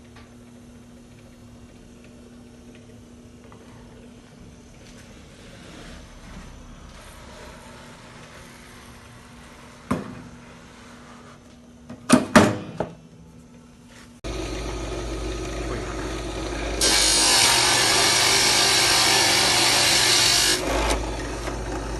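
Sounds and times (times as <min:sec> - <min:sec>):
power tool humming: 0:14.2 - 0:21.9
saw cutting wood: 0:14.3 - 0:21.9.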